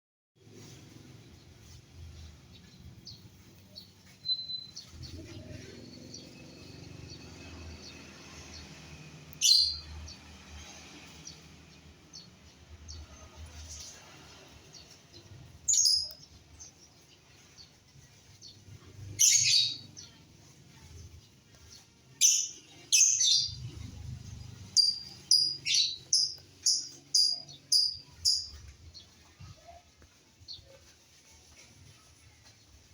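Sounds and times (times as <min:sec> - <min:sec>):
small high bird chirps: 0:02.7 - 0:07.2, 0:09.3 - 0:10.0, 0:15.5 - 0:17.7, 0:18.4 - 0:20.2, 0:21.7 - 0:31.2.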